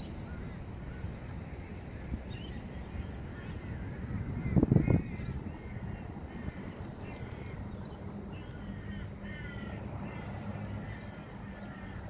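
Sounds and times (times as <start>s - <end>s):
steady low hum: 0.0s - 12.0s
crows cawing: 3.4s - 7.6s, 8.4s - 12.0s.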